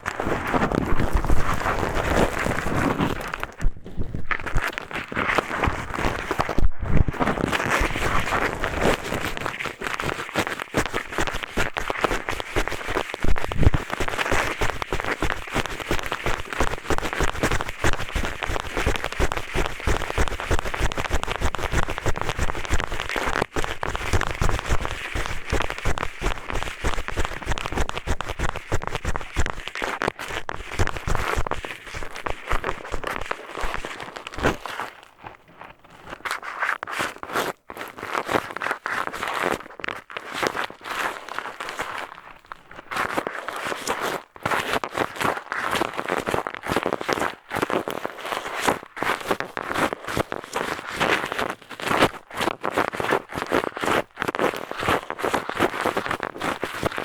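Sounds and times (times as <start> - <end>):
eyeglasses scraping a microphone: 0.0 - 15.1.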